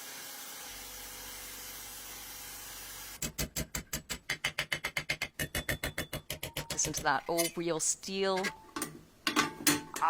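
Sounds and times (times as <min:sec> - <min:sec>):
fast sharp knocks: 0:03.2 - 0:07.1.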